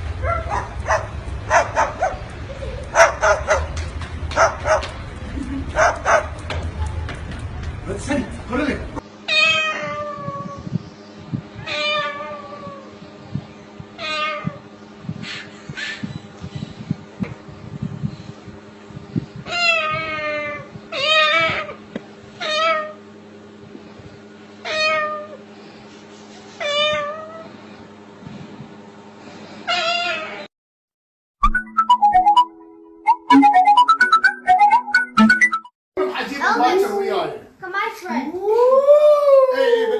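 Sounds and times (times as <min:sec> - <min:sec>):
cat meowing: 0:09.3 - 0:10.7, 0:11.6 - 0:12.9, 0:14.0 - 0:14.6, 0:19.5 - 0:21.8, 0:22.4 - 0:23.0, 0:24.6 - 0:25.4, 0:26.6 - 0:27.5, 0:29.7 - 0:30.5
parrot meowing: 0:19.5 - 0:21.8, 0:22.4 - 0:23.0, 0:29.7 - 0:30.5
music: 0:31.4 - 0:35.7.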